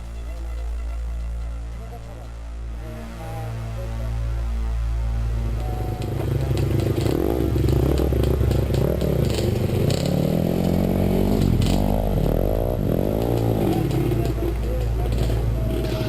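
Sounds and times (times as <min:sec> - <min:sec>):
background music: 0:00.0 - 0:16.0
dirt bike engine revving: 0:05.0 - 0:16.0.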